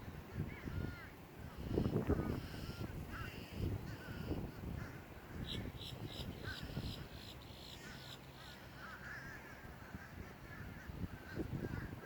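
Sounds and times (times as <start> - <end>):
wind rumble on microphone: 0.0 - 12.0
crows cawing: 2.3 - 12.0
small birds chirping: 5.2 - 9.0.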